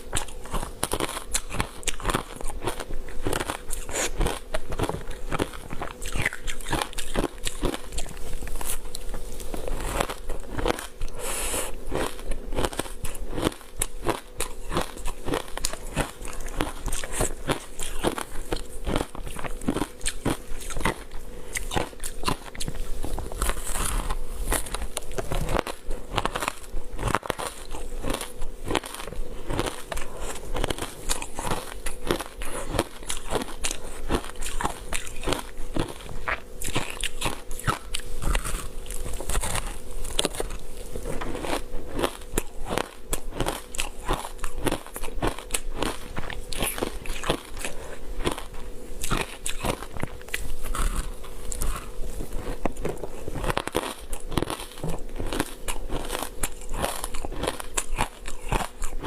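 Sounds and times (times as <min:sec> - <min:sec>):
person crunching ice: 0:09.6 - 0:59.0.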